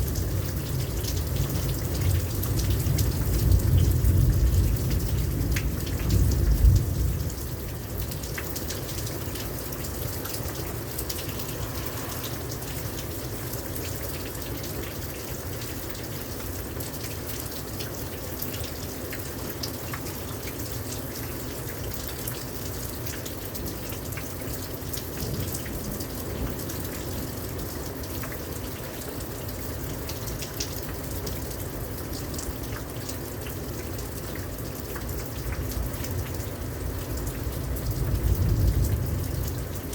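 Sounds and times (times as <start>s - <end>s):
drips and splashes: 0.0s - 39.9s
rain pouring down: 0.0s - 39.9s
low thunder rumble: 37.7s - 39.9s.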